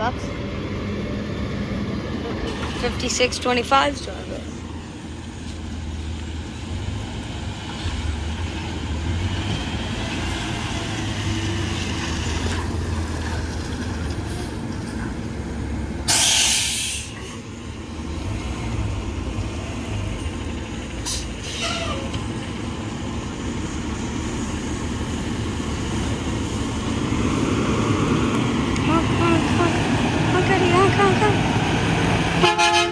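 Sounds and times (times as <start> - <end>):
garbage truck engine rumble: 0.0 - 32.6
air brake hiss: 16.1 - 17.4, 21.1 - 22.1.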